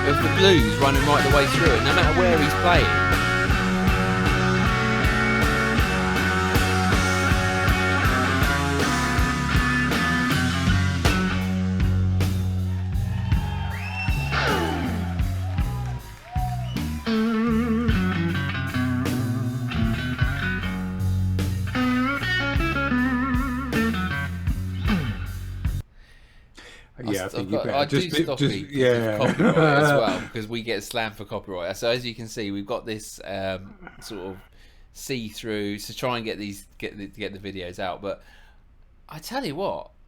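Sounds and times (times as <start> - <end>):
electric blues guitar solo: 0.0 - 25.5
bass: 0.0 - 25.8, 27.0 - 30.4
drums: 0.0 - 25.9.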